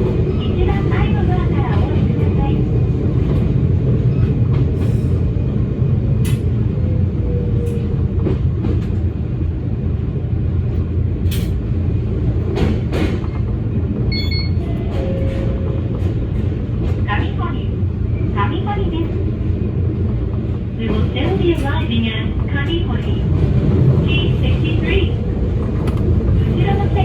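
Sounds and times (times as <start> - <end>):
train rumbling inside car: 0.0 - 27.0
train clicks: 6.2 - 6.6, 10.7 - 17.6, 25.4 - 27.0.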